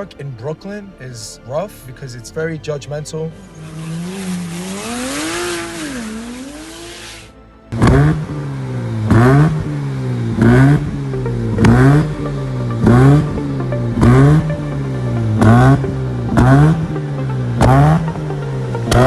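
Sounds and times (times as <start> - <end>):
background music: 0.0 - 19.0
car engine revving: 3.4 - 19.0.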